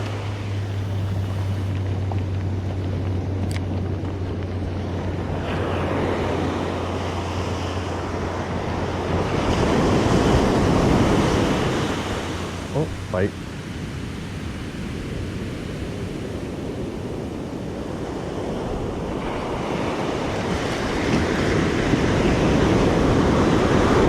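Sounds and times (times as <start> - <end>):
steady low hum: 0.0 - 16.4
ocean surf breaking: 0.0 - 24.0
wind buffeting microphone: 0.0 - 24.0.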